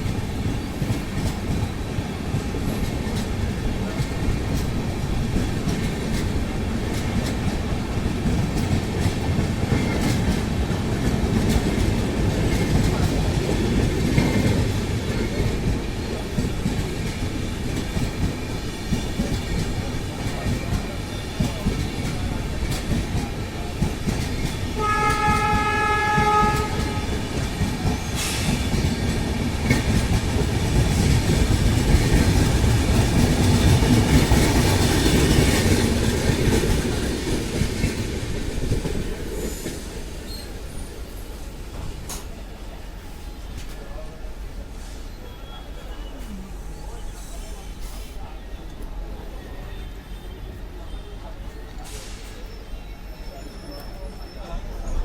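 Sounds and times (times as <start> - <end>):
train coaches rumbling on track: 0.0 - 55.0
train horn: 24.7 - 27.4.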